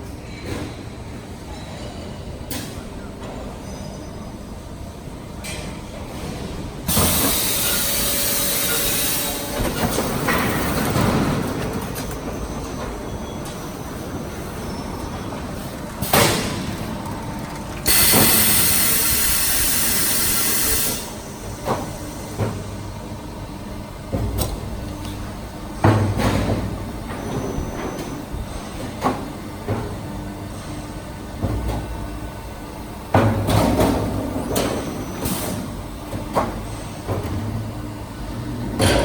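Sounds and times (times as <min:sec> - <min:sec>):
loud hiss: 0:17.9 - 0:21.1.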